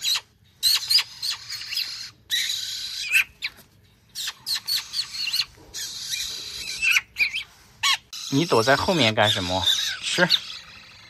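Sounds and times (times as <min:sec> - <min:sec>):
pet birds chirping and calling: 0:00.0 - 0:11.0.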